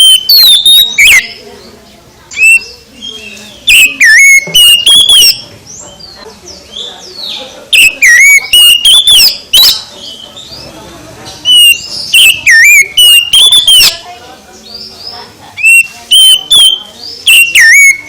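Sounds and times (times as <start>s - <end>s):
bird singing whistled phrases: 0.0s - 1.4s, 2.3s - 5.4s, 7.2s - 10.2s, 11.4s - 14.1s, 15.6s - 18.0s
quieter bird calls: 0.0s - 18.0s.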